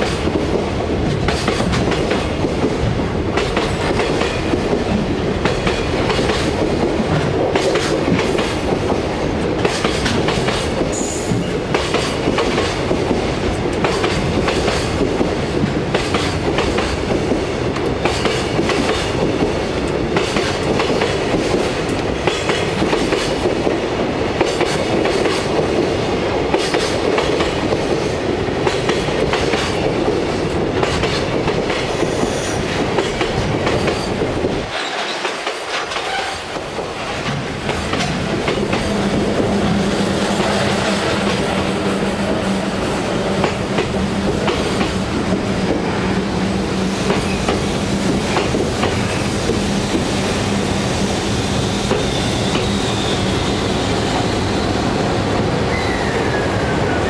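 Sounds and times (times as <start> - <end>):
train wheels clattering over rail joints: 0.0 - 23.8, 24.4 - 41.7, 46.9 - 50.1
short falling squeal: 55.7 - 56.6.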